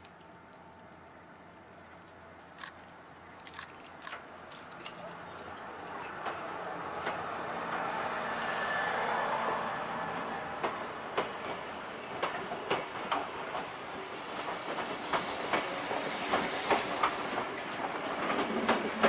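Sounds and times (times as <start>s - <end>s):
electric train running noise: 14.2s - 19.0s.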